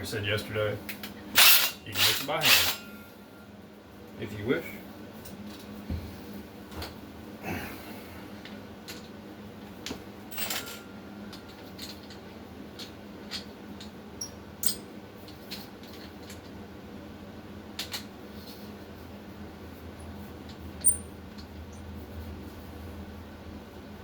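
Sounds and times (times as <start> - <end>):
faint steady hum: 0.0 - 24.0
tools and bucket clinking: 1.4 - 2.8.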